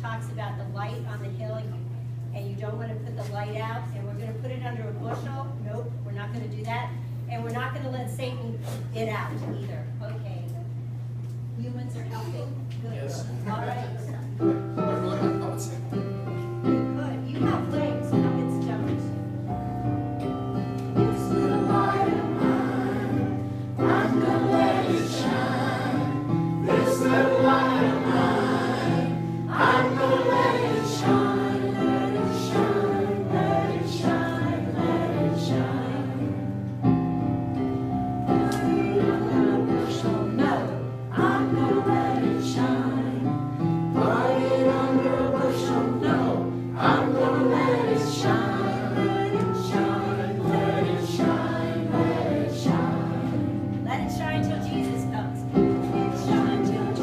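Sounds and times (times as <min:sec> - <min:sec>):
choir singing gospel song: 0:20.9 - 0:36.6, 0:38.2 - 0:53.8, 0:54.6 - 0:57.0.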